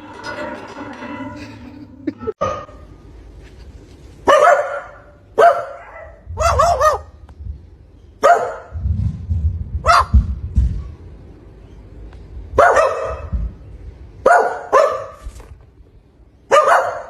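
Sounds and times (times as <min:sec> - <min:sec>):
dog barking: 0:04.3 - 0:07.1, 0:08.2 - 0:08.8, 0:09.8 - 0:10.2, 0:12.6 - 0:13.4, 0:14.2 - 0:15.2, 0:16.5 - 0:17.0
low rumble: 0:06.1 - 0:08.0, 0:08.7 - 0:11.5.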